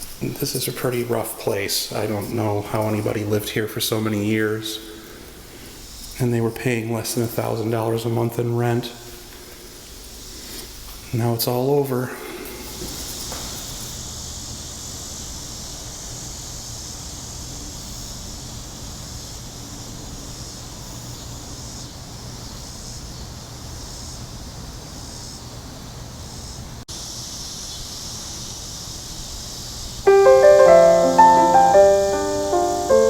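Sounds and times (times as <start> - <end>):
cicadas droning: 0.0 - 33.0
piano music: 30.1 - 33.0.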